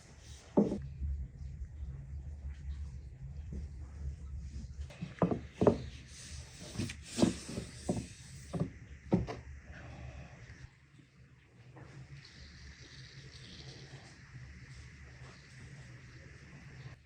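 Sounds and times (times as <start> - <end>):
low steady hum: 0.0 - 17.0
light knocks and clatters: 3.4 - 6.0.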